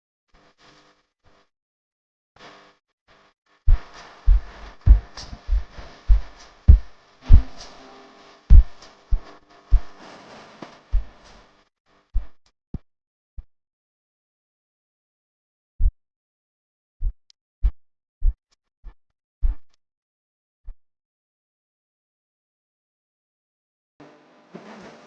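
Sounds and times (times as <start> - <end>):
electronic beat with bass kicks: 3.7 - 7.7.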